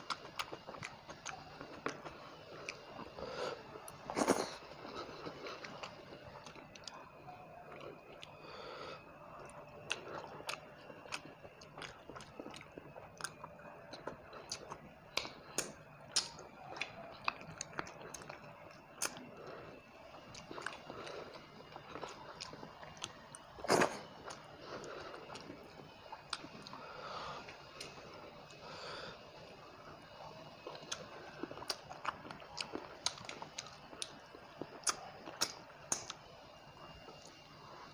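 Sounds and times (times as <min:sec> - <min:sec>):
crunching bite: 0:00.0 - 0:07.0, 0:09.4 - 0:19.6, 0:20.3 - 0:25.6, 0:30.6 - 0:34.1, 0:34.7 - 0:36.2
person chewing food: 0:00.0 - 0:37.8.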